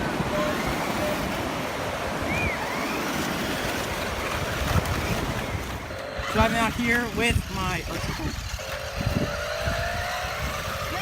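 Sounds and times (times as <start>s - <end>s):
surf washing on a beach: 0.0s - 7.9s
wind buffeting microphone: 0.0s - 11.0s.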